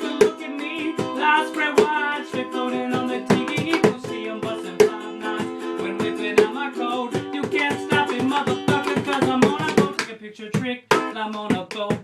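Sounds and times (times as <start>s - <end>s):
ukulele strumming chords: 0.0s - 10.1s, 10.9s - 12.0s.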